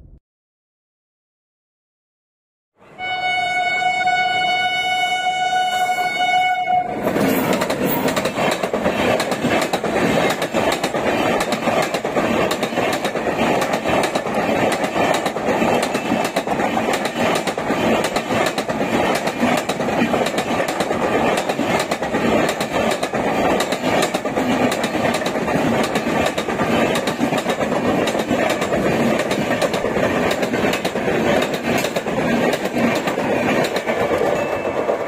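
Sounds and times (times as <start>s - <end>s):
locomotive horn blast: 2.8s - 7.0s
train passing at high speed: 2.8s - 35.0s.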